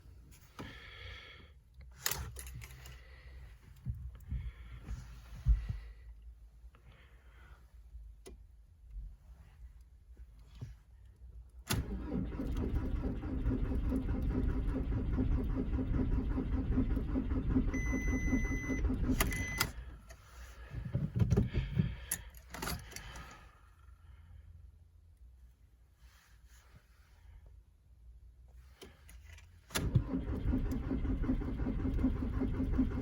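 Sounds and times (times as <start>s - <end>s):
diesel engine cranking on starter: 11.7s - 20.0s, 29.7s - 33.0s
high warning beep: 17.7s - 19.7s.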